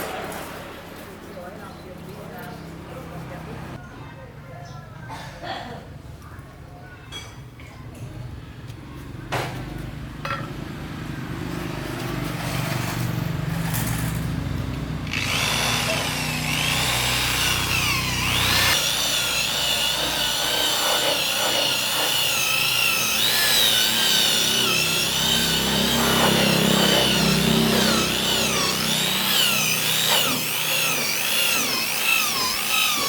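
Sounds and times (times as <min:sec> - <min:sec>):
power tool motor whining: 0:13.6 - 0:33.0.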